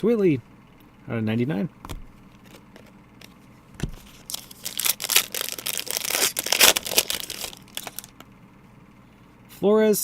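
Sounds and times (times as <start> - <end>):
plastic packaging crinkling and tearing: 4.0 - 8.1.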